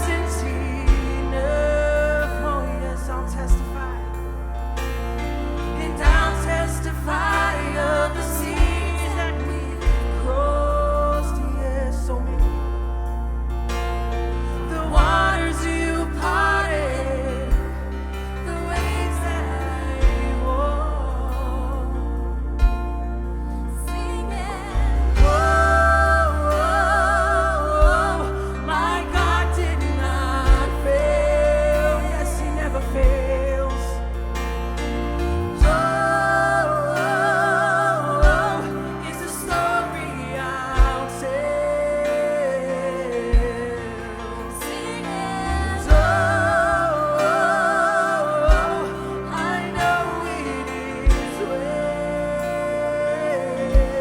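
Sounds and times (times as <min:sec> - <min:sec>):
gospel worship band playing: 0:00.0 - 0:54.0.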